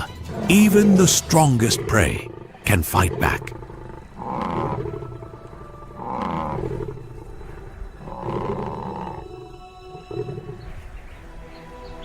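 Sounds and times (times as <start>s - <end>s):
lion roaring: 0.0s - 9.5s.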